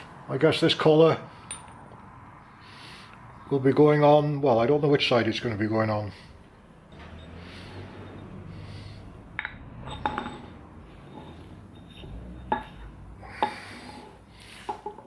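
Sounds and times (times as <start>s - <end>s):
metal parts clinking: 9.4s - 10.6s.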